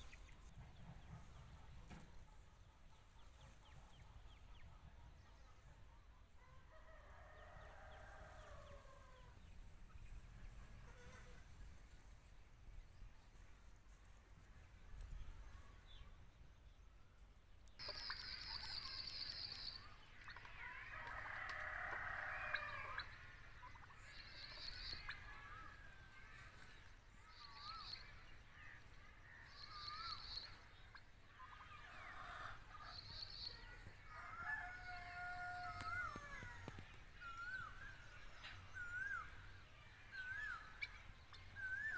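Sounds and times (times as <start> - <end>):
turkey gobbling: 17.8 - 26.6, 29.6 - 33.4.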